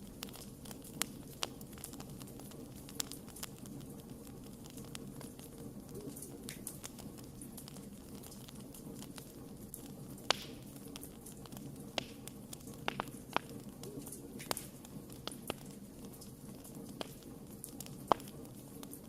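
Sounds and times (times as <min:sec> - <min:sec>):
campfire crackling and popping: 0:00.0 - 0:19.0
low rush of flame: 0:00.0 - 0:19.0.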